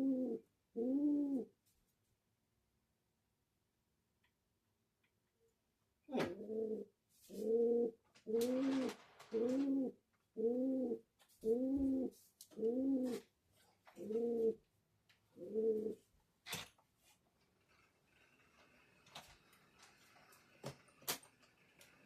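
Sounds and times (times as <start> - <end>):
dove cooing: 0.0 - 1.5, 6.1 - 13.3, 14.0 - 14.6, 15.4 - 16.1.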